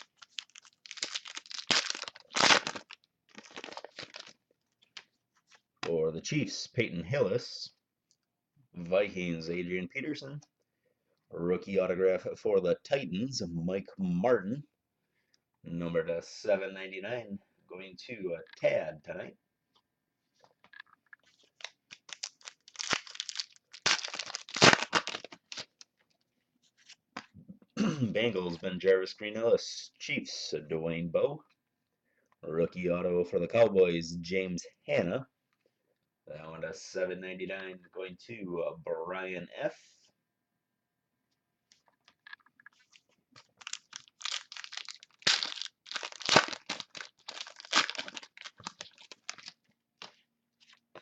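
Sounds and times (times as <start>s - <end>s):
plastic wrapper tearing and crinkling: 0.0s - 4.4s, 21.3s - 25.9s, 42.2s - 50.1s
cards being handled: 41.7s - 51.0s.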